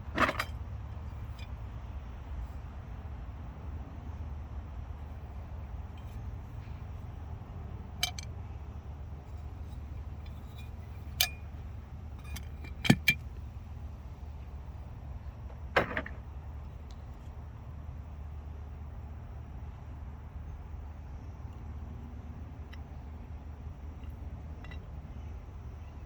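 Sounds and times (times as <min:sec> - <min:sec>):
steady low hum: 0:00.0 - 0:26.0
metallic clicks and clinks: 0:08.0 - 0:08.3, 0:12.2 - 0:13.2.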